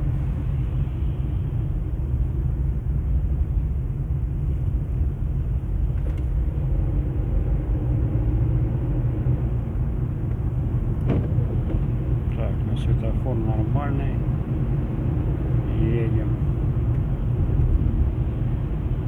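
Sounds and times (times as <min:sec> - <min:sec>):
car cabin rumble: 0:05.0 - 0:19.0.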